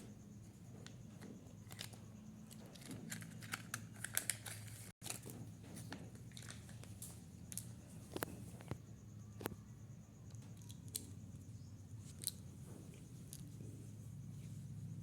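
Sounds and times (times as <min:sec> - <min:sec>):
plastic packaging clicks and crinkles: 0:01.7 - 0:05.3, 0:06.2 - 0:08.3.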